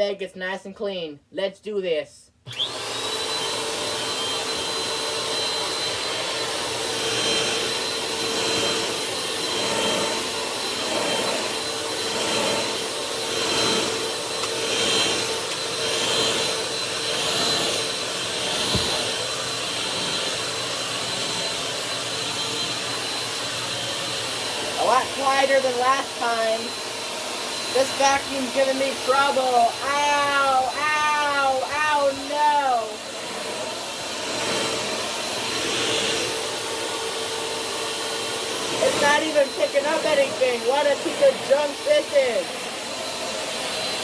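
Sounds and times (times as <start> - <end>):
vacuum cleaner whining: 2.4 - 44.0.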